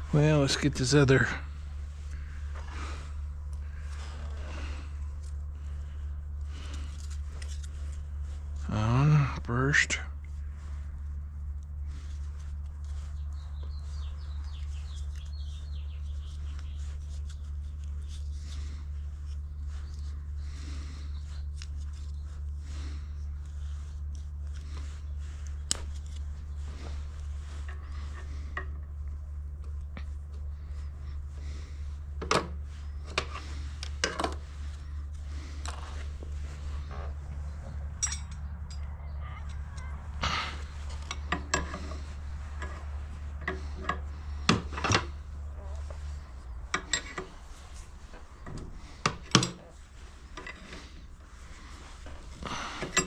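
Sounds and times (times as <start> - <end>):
parts clicking and rubbing: 0.0 - 8.7, 23.2 - 53.0
steady low hum: 0.0 - 53.0.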